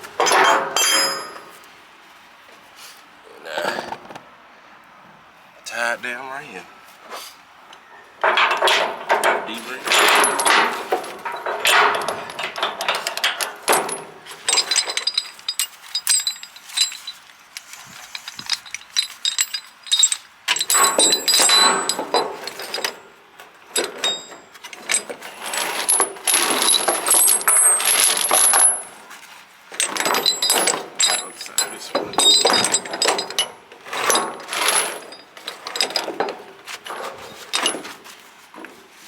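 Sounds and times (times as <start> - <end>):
steel chain clinking and rattling: 0.2 - 1.6, 8.2 - 38.0.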